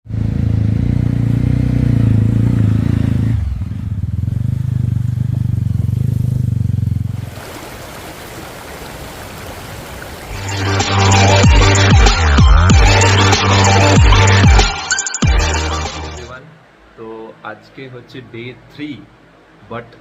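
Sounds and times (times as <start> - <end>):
motorcycle engine running: 0.1 - 7.2
river flowing: 7.2 - 11.9.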